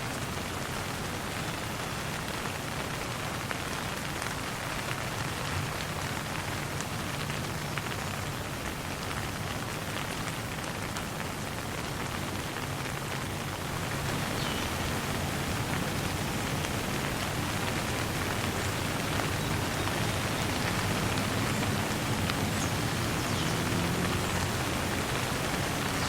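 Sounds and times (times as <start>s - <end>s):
light rain falling: 0.0s - 26.0s.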